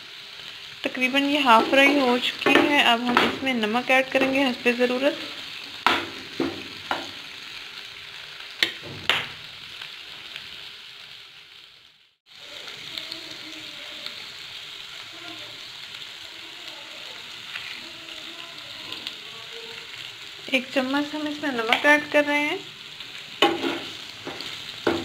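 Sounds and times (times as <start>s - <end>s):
liver sizzling in oil: 0.0s - 25.0s
plastic spoon knocking on pan: 1.6s - 3.5s, 5.8s - 7.2s, 23.4s - 25.0s.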